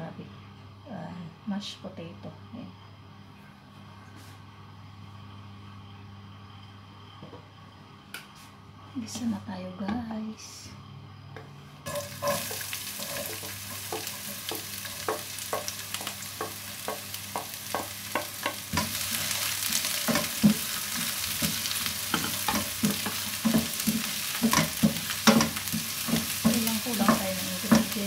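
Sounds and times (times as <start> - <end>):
food sizzling in hot oil: 11.9 - 28.0
spatula knocking against pan: 13.3 - 19.0, 21.4 - 28.0.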